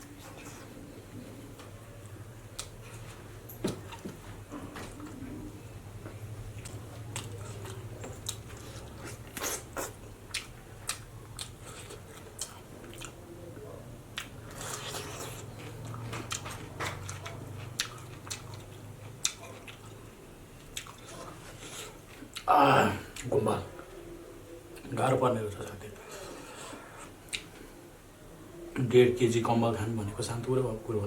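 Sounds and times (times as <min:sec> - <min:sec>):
chewing and crunching: 0:06.0 - 0:22.5.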